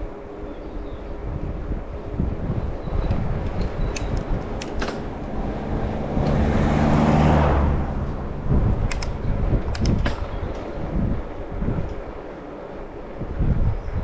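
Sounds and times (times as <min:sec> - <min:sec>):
wind rumbling on microphone: 0:00.0 - 0:14.0
sharp clicks: 0:03.0 - 0:05.1, 0:08.8 - 0:10.3
motor vehicle passing: 0:04.2 - 0:12.1.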